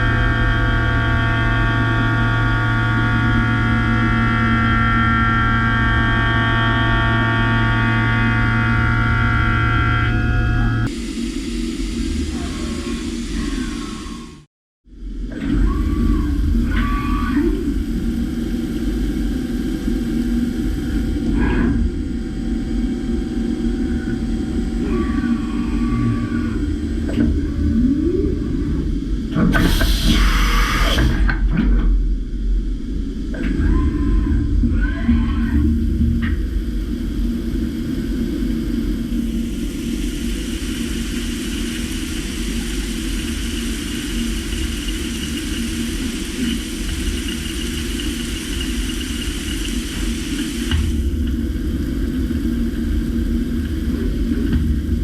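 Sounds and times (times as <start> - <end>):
milling machine humming: 0.0 - 14.5, 33.0 - 55.0
thin high machine whine: 32.8 - 55.0.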